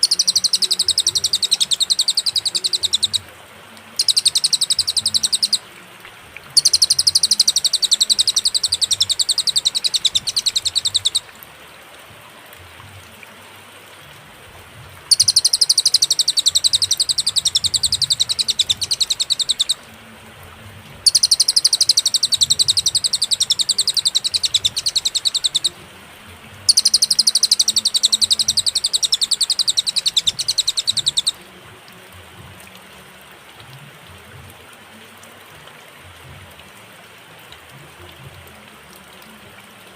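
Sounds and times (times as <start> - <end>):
bird singing fast high trill: 0.0 - 3.2, 4.0 - 5.6, 6.6 - 11.3, 15.1 - 19.8, 21.0 - 25.8, 26.7 - 31.4
faint steady hiss: 0.0 - 39.9.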